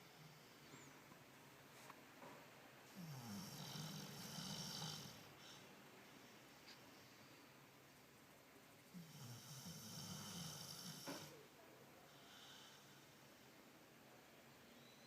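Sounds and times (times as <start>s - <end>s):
dog snoring: 2.9s - 5.6s, 8.9s - 11.3s.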